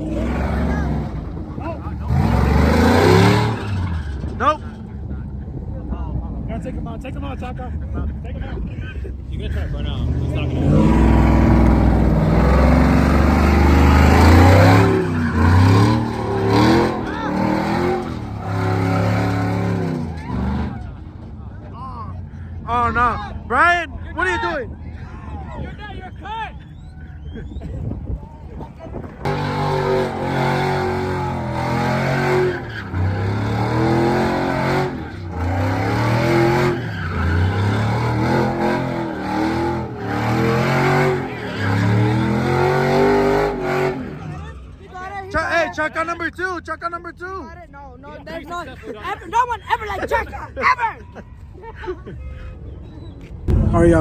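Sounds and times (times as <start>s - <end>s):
car engine revving hard: 0.0s - 4.7s, 9.4s - 21.0s, 29.2s - 44.5s.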